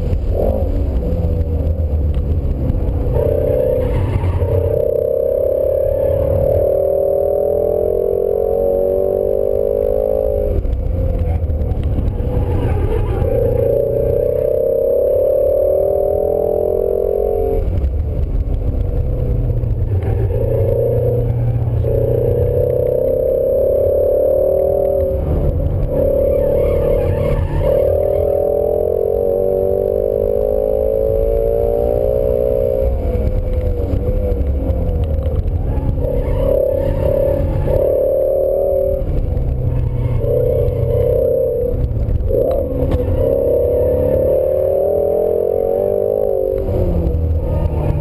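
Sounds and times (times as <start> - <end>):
engine revving: 0.0 - 48.0
road rumble: 0.0 - 48.0.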